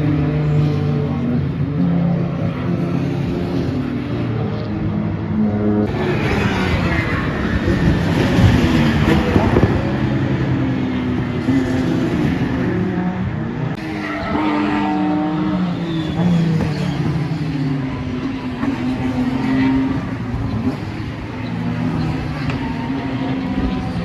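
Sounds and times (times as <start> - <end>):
racing car engines: 0.0 - 24.0.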